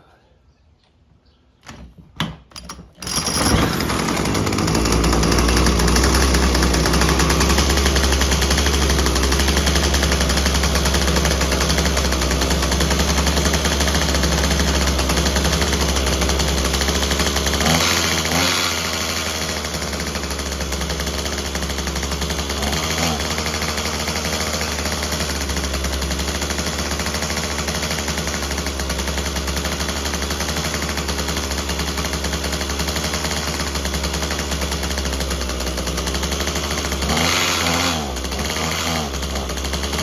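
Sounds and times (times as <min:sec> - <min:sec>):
trimmer engine running with buzzy rattle: 0:02.9 - 0:40.0.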